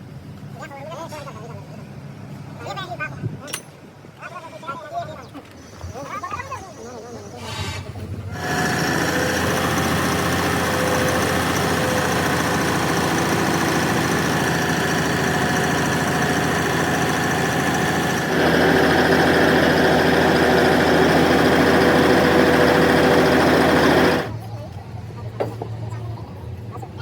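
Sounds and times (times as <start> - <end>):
engine running: 8.0 - 27.0.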